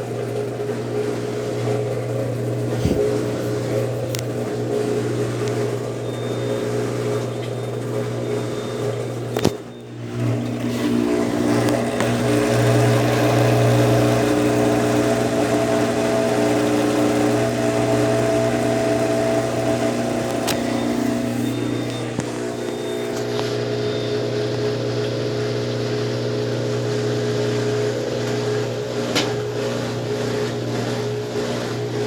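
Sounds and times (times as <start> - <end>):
washing machine motor hum: 0.0 - 32.0.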